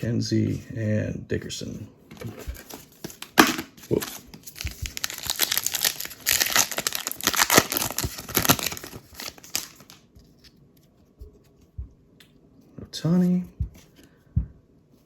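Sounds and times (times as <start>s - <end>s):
plastic wrapper tearing and crinkling: 2.6s - 10.0s.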